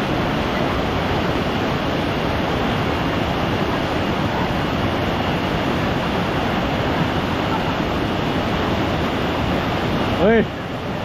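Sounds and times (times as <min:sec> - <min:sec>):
fast-flowing river water: 0:00.0 - 0:11.0.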